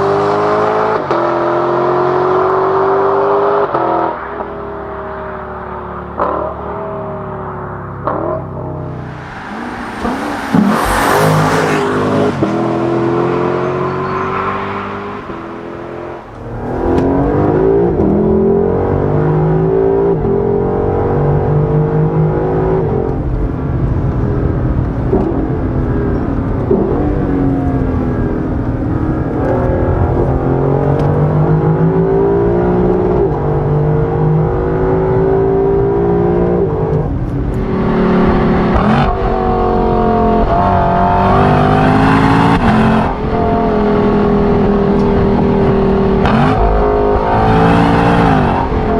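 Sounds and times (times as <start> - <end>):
car engine revving: 0.0 - 48.9
loud rushing noise: 8.8 - 17.9.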